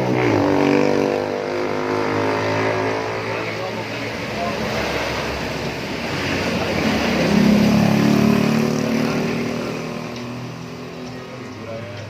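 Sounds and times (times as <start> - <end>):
vehicle engine passing by: 0.0 - 12.0.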